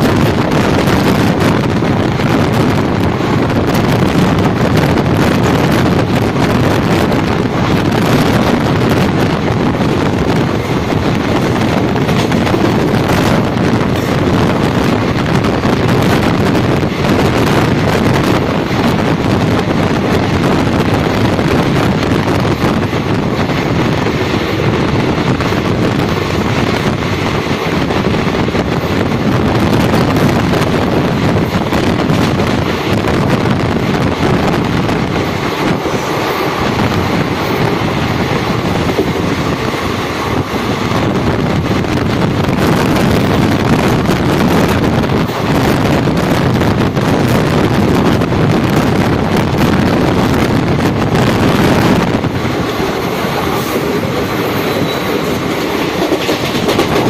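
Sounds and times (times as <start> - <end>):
train rumbling on rails: 0.0 - 57.0
wind buffeting microphone: 0.0 - 57.0.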